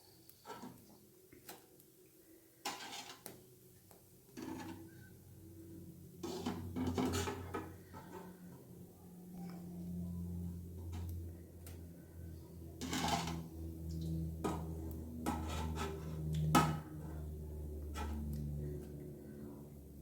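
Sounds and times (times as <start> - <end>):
metal spoon scraping a pan: 2.6 - 3.4, 4.3 - 5.0, 6.2 - 8.4, 12.7 - 18.2.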